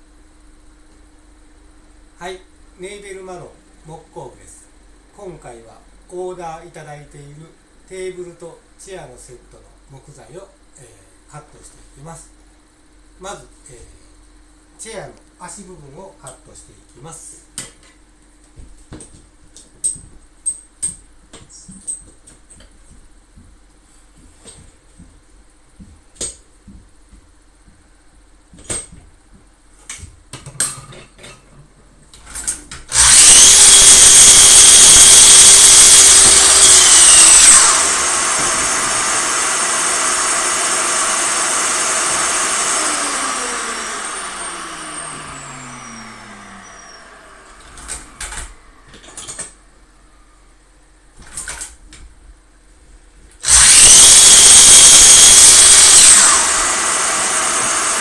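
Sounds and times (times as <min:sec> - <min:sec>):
miter saw cutting wood: 0:32.9 - 0:48.3, 0:53.4 - 0:58.0
saw blade winding down: 0:32.9 - 0:48.6, 0:53.4 - 0:58.0.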